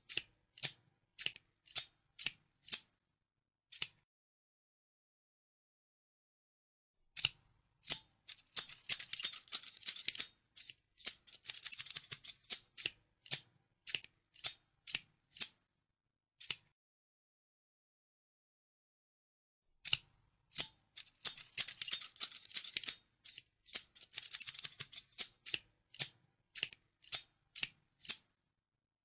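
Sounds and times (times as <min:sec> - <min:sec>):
scissors snipping: 0:00.0 - 0:02.9, 0:03.7 - 0:04.0, 0:07.2 - 0:15.6, 0:16.4 - 0:16.7, 0:19.8 - 0:28.3.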